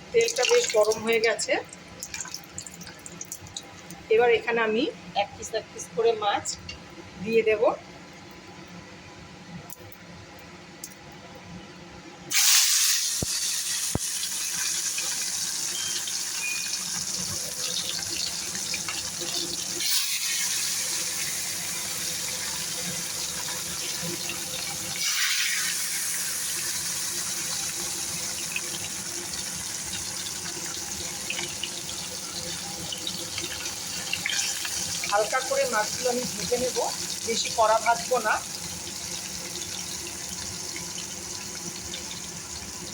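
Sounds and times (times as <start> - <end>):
fish sizzling in hot oil: 0.2 - 3.7, 12.3 - 42.9.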